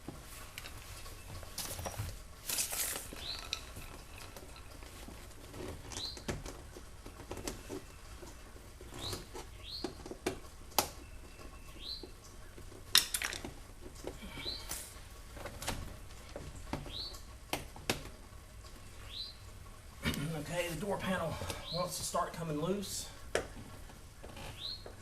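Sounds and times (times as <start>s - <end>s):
bird chirps: 11.0s - 12.6s, 16.8s - 17.2s, 19.0s - 19.5s, 24.5s - 25.0s.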